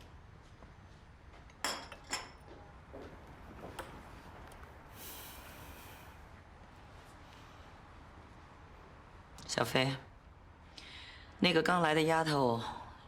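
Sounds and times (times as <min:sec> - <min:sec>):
short hiss: 0:05.0 - 0:06.2.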